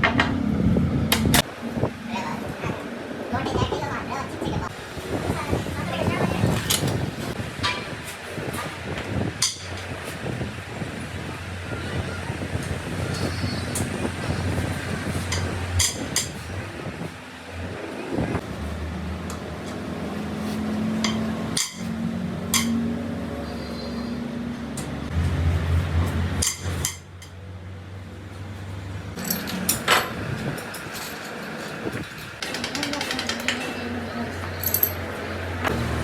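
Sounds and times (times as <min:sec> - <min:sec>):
metal tools clinking: 0:29.2 - 0:33.9, 0:34.5 - 0:35.1.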